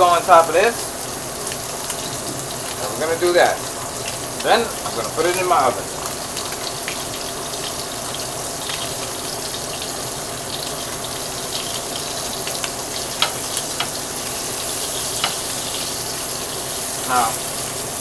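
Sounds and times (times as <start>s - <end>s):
meat sizzling in a pan: 0.0s - 18.0s.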